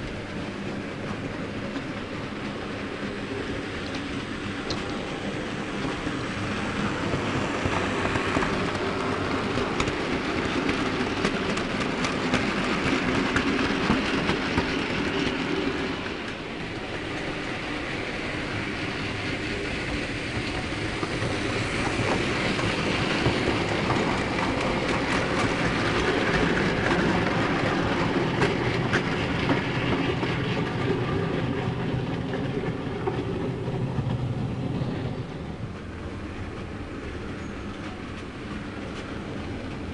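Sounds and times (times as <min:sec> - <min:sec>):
model train wheels clicking: 0:05.7 - 0:31.5.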